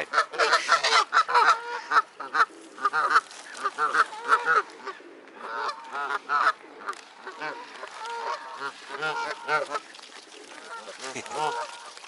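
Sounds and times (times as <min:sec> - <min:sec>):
waterbirds honking: 0:00.0 - 0:12.0.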